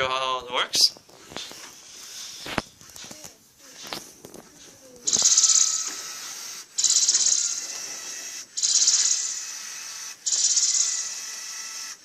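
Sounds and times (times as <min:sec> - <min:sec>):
toy motor gears ratcheting: 0:04.9 - 0:12.0.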